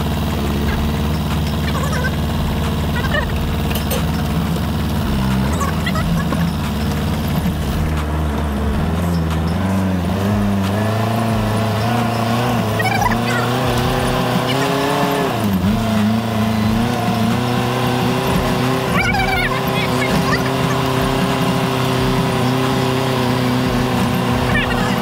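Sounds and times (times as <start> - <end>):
heavy vehicle engine running: 0.0 - 25.0.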